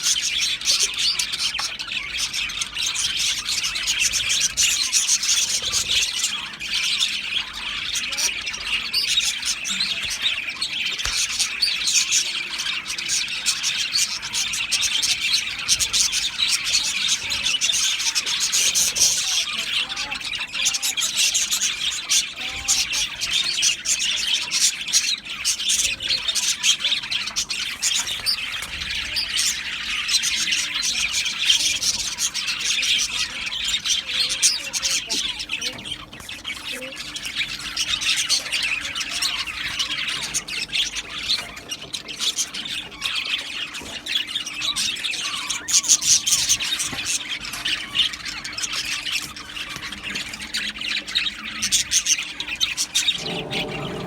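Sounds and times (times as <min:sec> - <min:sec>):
budgies chattering: 0:00.0 - 0:54.0.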